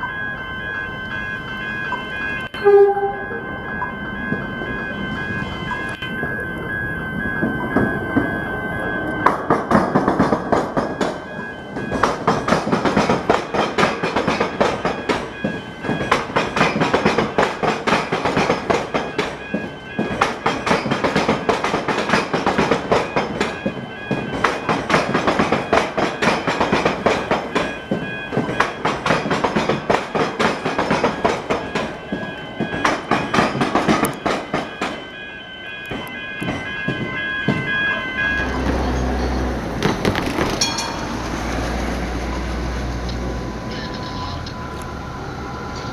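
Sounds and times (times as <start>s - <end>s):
steady high tone: 0.0s - 39.7s
train wheels clattering over crossing: 9.2s - 35.1s.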